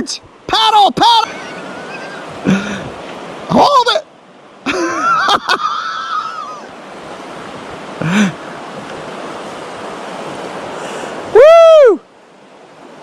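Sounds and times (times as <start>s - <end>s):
wordless vocal exclamation: 0.0s - 1.3s
wind and water hiss: 0.0s - 13.0s.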